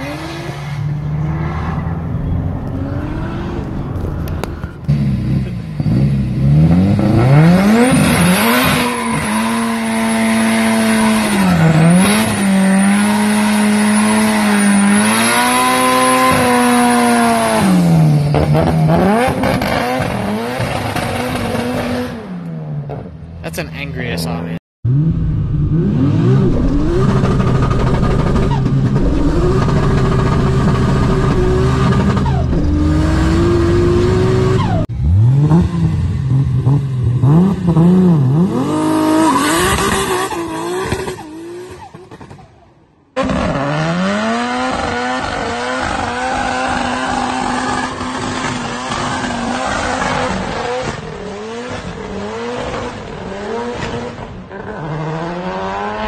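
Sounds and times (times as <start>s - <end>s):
car engine revving: 0.0s - 42.4s
tyre squeal: 8.4s - 12.6s.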